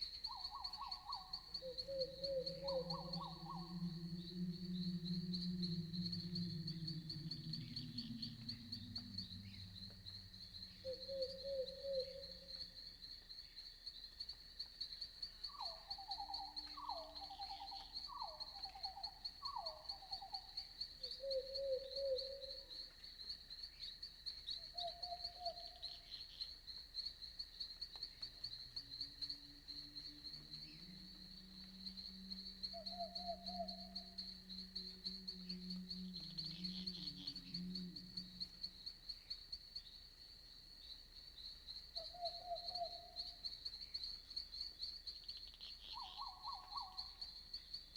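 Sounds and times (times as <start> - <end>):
pulsed night animal calls: 0.0 - 13.7, 15.0 - 47.7
crickets chirping: 0.0 - 47.9
low drone: 1.8 - 11.8, 33.7 - 38.8.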